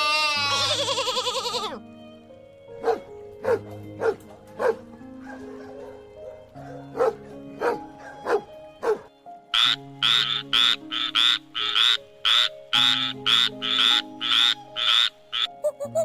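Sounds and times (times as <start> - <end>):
background music: 0.0 - 16.0
frog croaking: 9.5 - 15.5.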